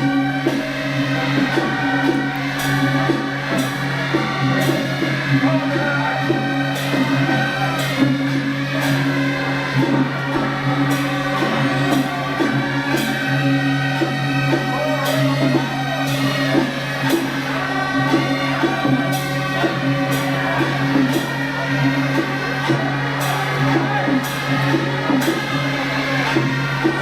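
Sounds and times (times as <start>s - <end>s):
steady low drone: 0.0s - 27.0s.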